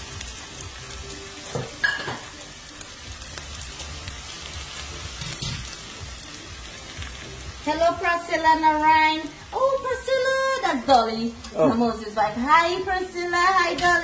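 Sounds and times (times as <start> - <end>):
food sizzling in oil in a pan: 0.0 - 14.0.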